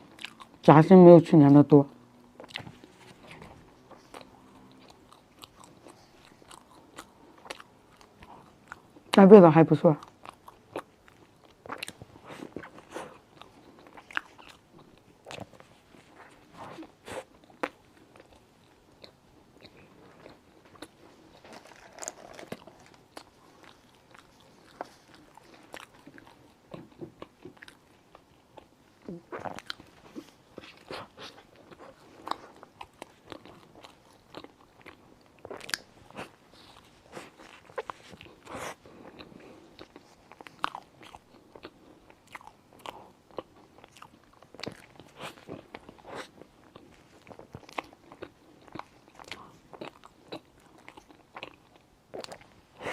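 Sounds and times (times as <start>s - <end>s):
person biting and chewing: 16.2s - 28.7s, 29.3s - 52.9s.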